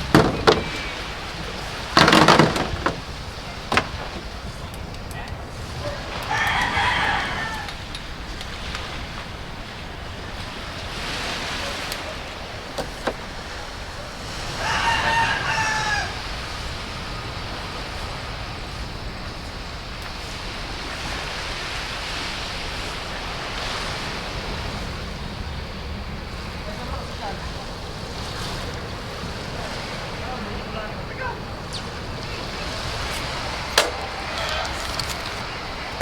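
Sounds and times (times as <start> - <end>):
surf washing: 0.0 - 36.0
rooster crowing: 5.8 - 7.9, 14.2 - 16.4, 33.0 - 36.0.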